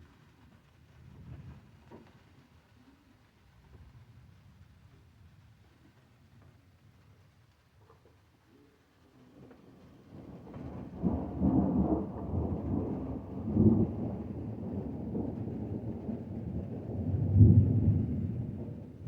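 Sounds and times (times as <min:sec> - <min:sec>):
light rain: 0:00.0 - 0:19.0
deep thunder rumbling: 0:10.1 - 0:19.0.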